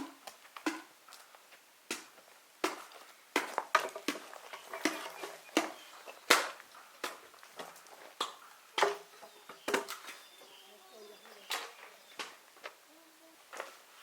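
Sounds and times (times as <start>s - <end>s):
sharp knocks or chops: 0.0s - 0.9s.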